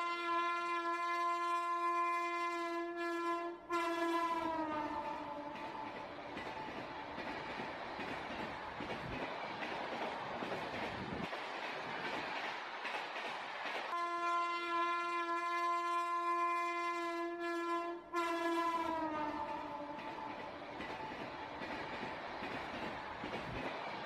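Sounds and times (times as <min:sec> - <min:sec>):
train horn: 0:00.0 - 0:06.0, 0:13.9 - 0:20.4
train wheels rumbling on rails: 0:03.7 - 0:24.0.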